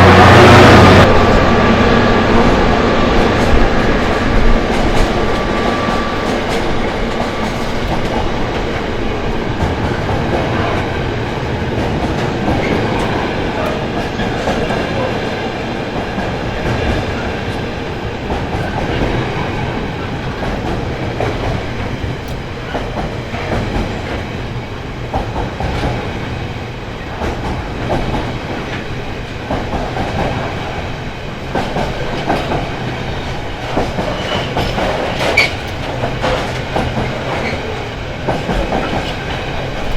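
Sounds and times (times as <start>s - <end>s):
freight train rumbling past: 0.0s - 39.9s
wheels clicking over rail joints: 27.1s - 39.9s.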